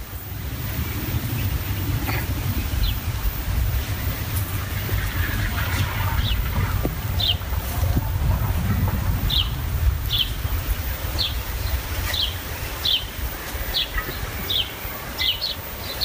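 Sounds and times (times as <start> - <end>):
low rumble: 0.0 - 14.6
small bird chirping: 9.2 - 16.0.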